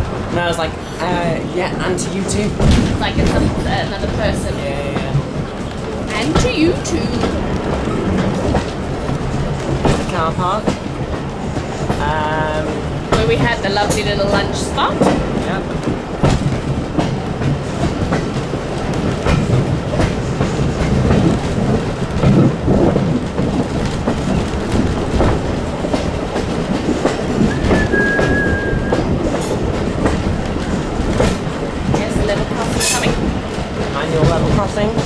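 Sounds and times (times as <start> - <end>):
train wheels rumbling over rail joints: 0.0 - 35.0
brief high tone: 27.5 - 29.0.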